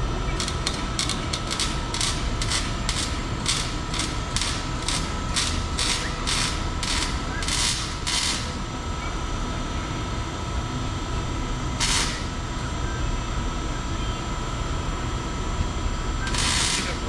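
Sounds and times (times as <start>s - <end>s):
steady low rumble: 0.0s - 13.8s
ratchet wrench strokes: 0.4s - 8.6s, 11.8s - 12.4s, 16.3s - 17.0s.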